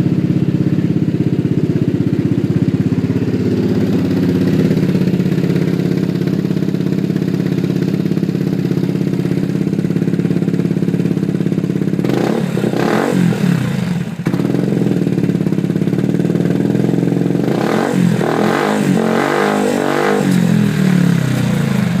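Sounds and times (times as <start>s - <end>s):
scooter engine idling and revving: 0.0s - 22.0s.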